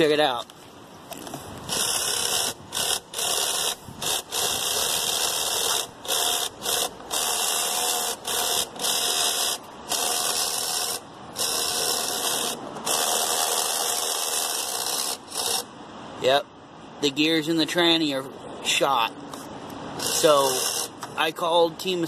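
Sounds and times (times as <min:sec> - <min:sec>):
toy car drivetrain whirring and clicking: 0:01.7 - 0:15.7, 0:20.0 - 0:21.0.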